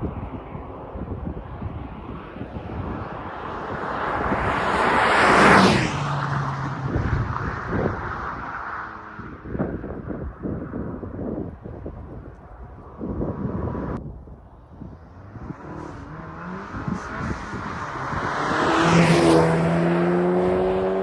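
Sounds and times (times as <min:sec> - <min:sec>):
wind noise on microphone: 0:00.0 - 0:21.0
car exhaust passing by: 0:01.8 - 0:09.9, 0:14.7 - 0:21.0.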